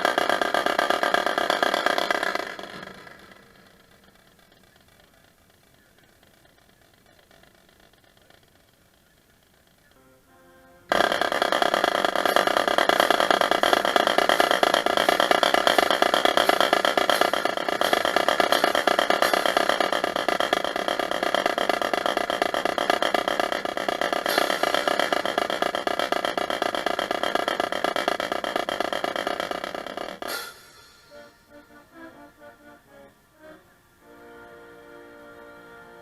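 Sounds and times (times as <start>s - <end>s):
fast drumline drumming: 0.0s - 3.5s, 10.9s - 30.8s
held chord: 10.0s - 11.0s, 30.3s - 36.0s.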